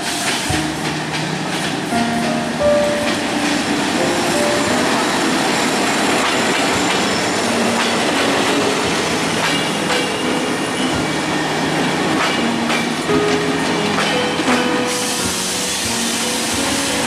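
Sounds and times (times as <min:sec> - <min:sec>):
wheels clicking over rail joints: 0:00.0 - 0:05.4, 0:06.1 - 0:17.0
train engine and wheels rumbling: 0:00.0 - 0:17.0
wheel squeals: 0:04.8 - 0:12.9.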